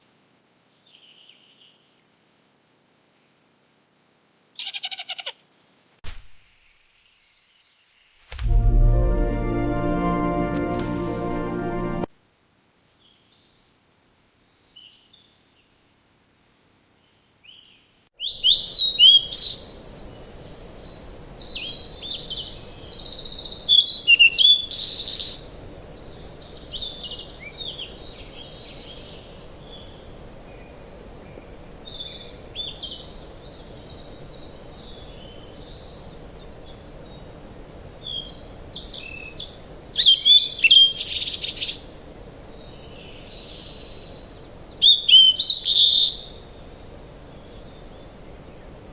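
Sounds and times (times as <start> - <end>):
steady background hiss: 18.6 - 48.9.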